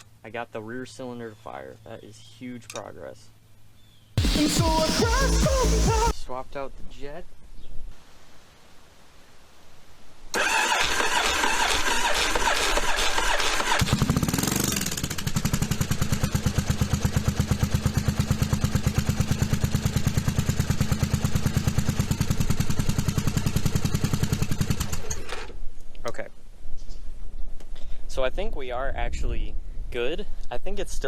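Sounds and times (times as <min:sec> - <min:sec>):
motorcycle starter cranking: 0:10.4 - 0:25.6
motorcycle engine idling: 0:12.7 - 0:25.1.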